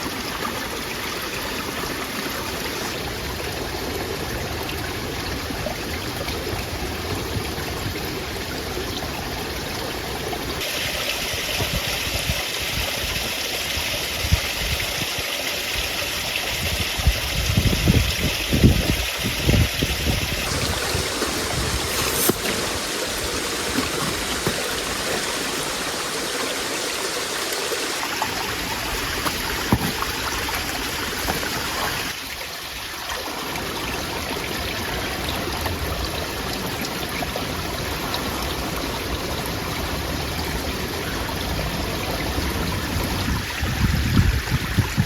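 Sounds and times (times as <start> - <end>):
steady rushing noise: 20.4 - 30.0.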